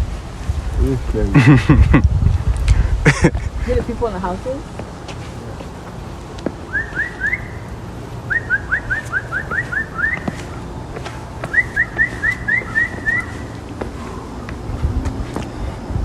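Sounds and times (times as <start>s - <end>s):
songbird whistling: 6.7s - 14.5s.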